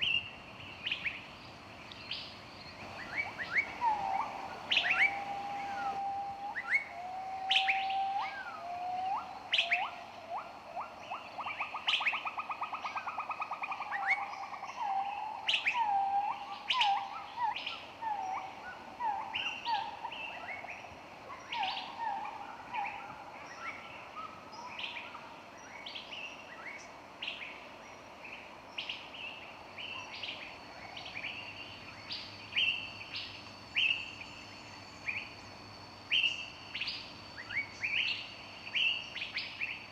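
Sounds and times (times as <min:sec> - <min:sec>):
birds chirping and whistling: 0:02.8 - 0:10.4.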